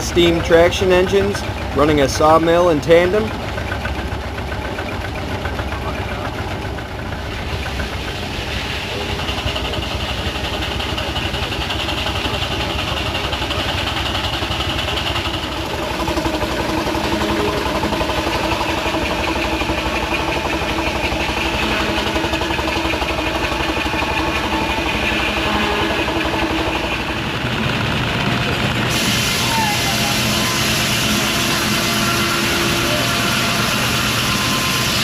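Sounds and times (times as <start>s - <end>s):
steam engines running: 0.0s - 35.0s
high whine: 15.2s - 35.0s.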